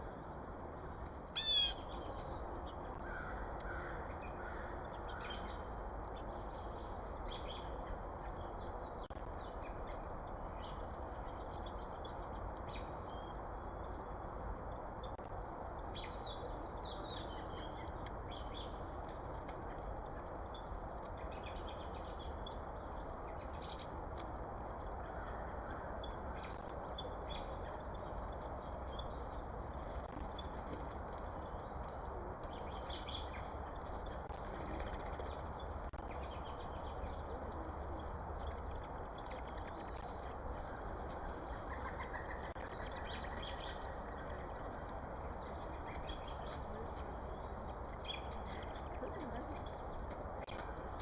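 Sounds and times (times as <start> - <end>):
birds calling: 24.8 - 51.0.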